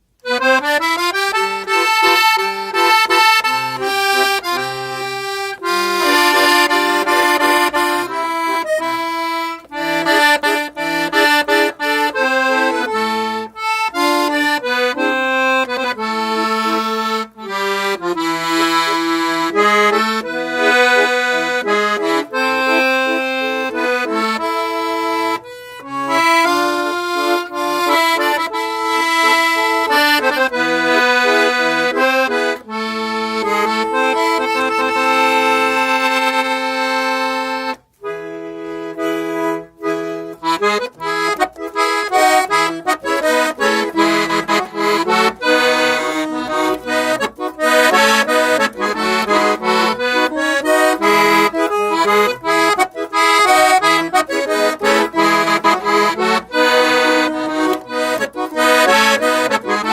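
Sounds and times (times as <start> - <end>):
piano accordion melody: 0.0 - 59.9.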